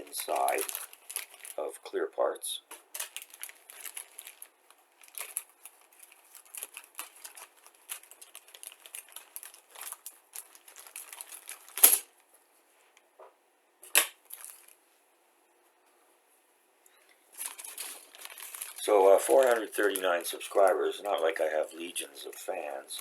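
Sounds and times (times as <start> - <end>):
plastic bags rustling and crinkling: 0.0 - 2.0, 2.6 - 12.3, 14.1 - 15.0, 17.2 - 23.0.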